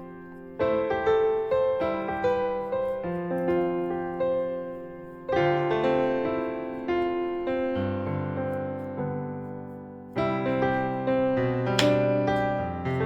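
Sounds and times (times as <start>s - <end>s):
gentle piano piece: 0.0s - 13.0s.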